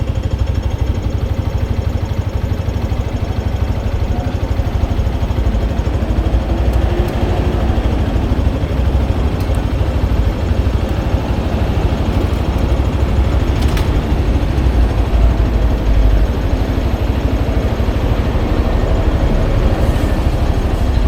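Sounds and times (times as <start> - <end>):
motorcycle engine drone: 0.0 - 21.0.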